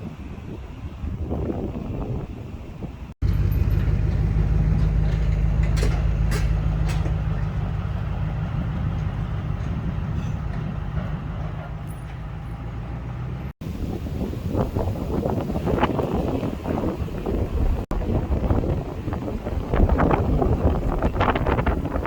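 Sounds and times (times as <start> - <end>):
wind noise: 0.0 - 22.0
large engine idling: 3.2 - 13.5.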